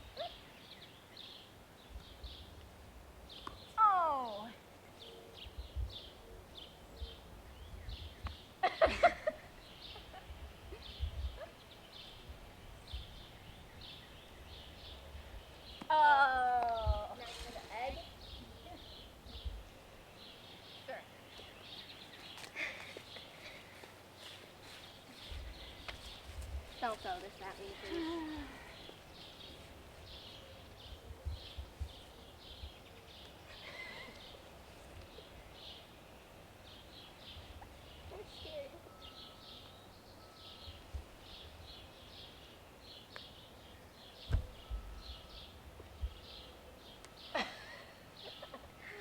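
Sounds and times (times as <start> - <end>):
wind rumble on microphone: 5.4 - 8.4, 10.1 - 11.6, 12.2 - 15.7, 25.2 - 27.0, 29.4 - 32.9, 44.2 - 46.5.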